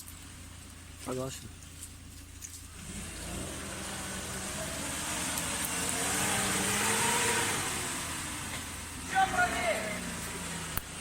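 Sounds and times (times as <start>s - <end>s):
engine revving hard: 2.8s - 11.0s.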